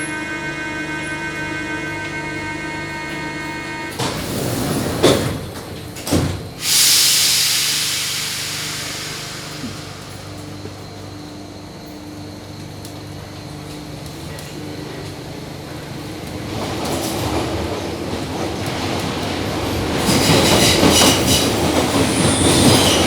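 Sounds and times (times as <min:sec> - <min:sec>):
train whine of pitched tones: 0:00.0 - 0:05.8, 0:06.5 - 0:13.7, 0:20.0 - 0:23.0
compressed air hiss: 0:06.6 - 0:10.6.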